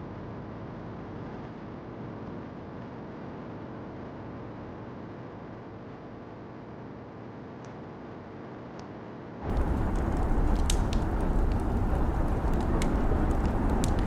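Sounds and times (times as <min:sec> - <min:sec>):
fire crackling: 0:09.4 - 0:14.0
rain hiss: 0:09.4 - 0:14.0.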